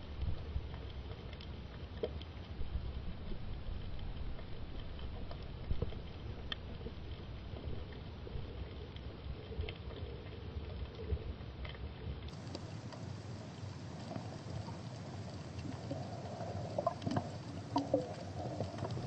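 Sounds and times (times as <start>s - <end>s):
steady water noise: 0.0s - 19.0s
light clicks and ticks: 0.1s - 3.1s, 3.7s - 19.0s.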